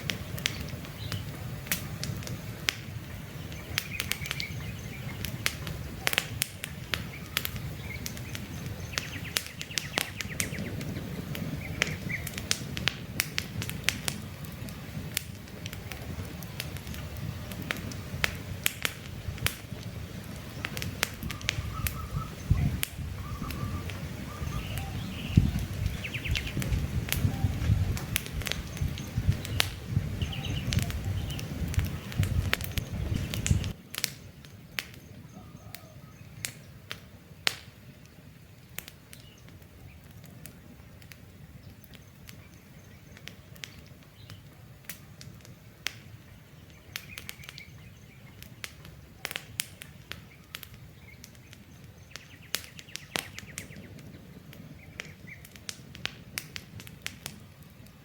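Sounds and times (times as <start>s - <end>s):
birds chirping: 0.0s - 55.7s
campfire crackling: 0.0s - 58.0s.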